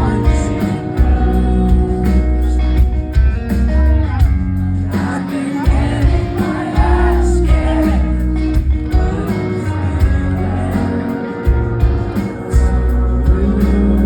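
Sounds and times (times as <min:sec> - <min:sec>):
person singing: 0:00.0 - 0:03.0, 0:04.9 - 0:14.0
drums: 0:00.0 - 0:14.0
electric guitar: 0:00.0 - 0:14.0
heavy bass: 0:00.0 - 0:14.0.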